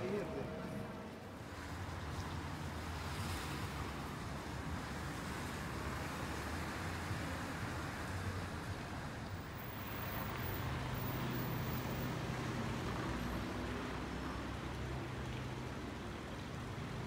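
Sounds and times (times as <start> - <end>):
street noise: 0.0 - 17.0.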